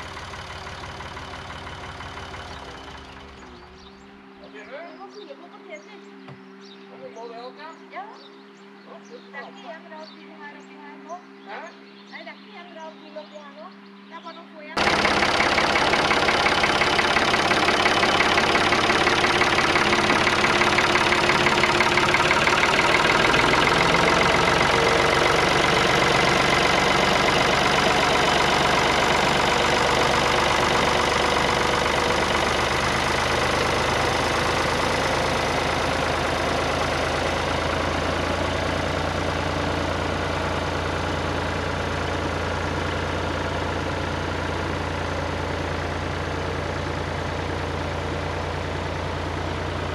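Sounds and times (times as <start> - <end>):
deep hum: 0.0 - 4.4, 14.8 - 49.9
tractor engine running: 0.0 - 4.6, 14.8 - 49.9.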